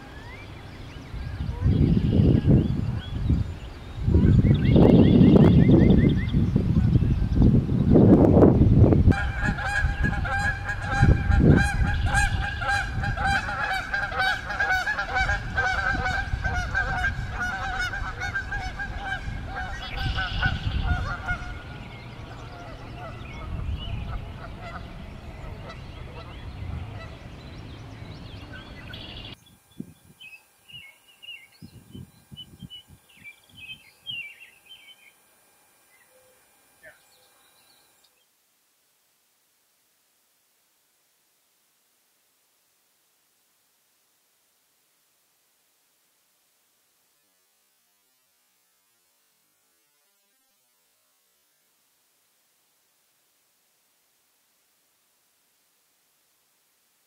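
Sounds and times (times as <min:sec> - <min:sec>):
bird wavering call: 0:09.1 - 0:35.2, 0:35.8 - 0:38.2.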